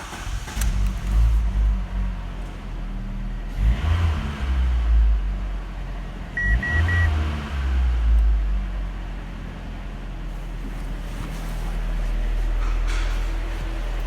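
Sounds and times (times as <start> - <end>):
car engine idling and revving: 0.0 - 14.0
short beeps: 6.4 - 7.1.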